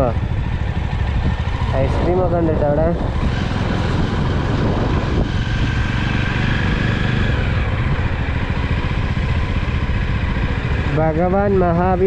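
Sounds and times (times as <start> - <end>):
motorcycle engine running: 0.0 - 12.0
road noise: 0.0 - 12.0.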